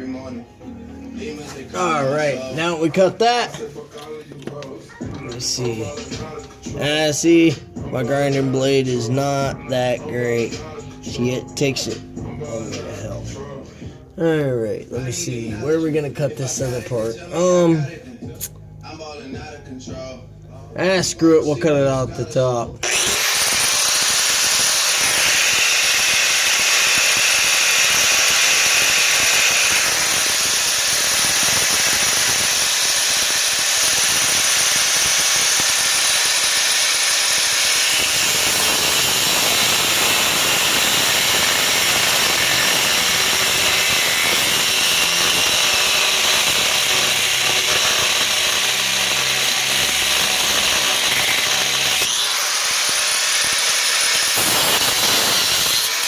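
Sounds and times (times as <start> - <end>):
angle grinder cutting steel: 22.8 - 56.0.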